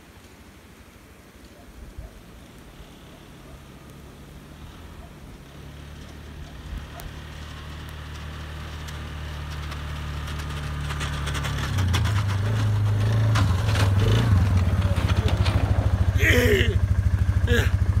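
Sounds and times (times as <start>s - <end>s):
engine running: 2.8s - 18.0s
clicks and scraping: 5.9s - 16.1s.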